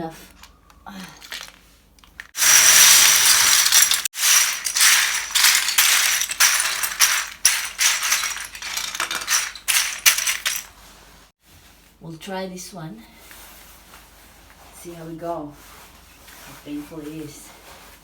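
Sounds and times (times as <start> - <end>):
plastic toys clattering: 0.3 - 10.7.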